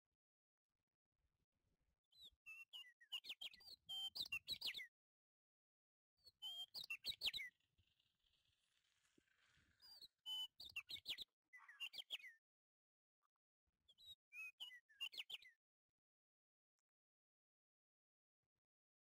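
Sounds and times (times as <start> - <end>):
small bird chirping: 2.1 - 4.9, 6.2 - 12.4, 13.9 - 15.6.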